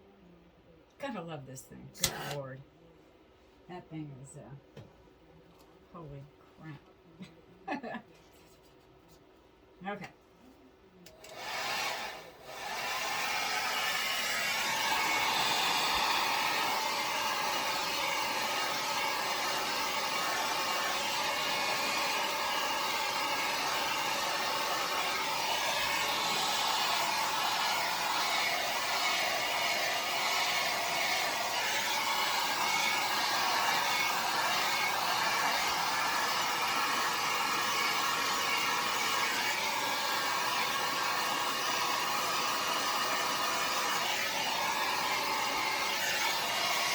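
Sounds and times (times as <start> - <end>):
hair dryer blowing: 2.0 - 2.4, 11.1 - 46.9.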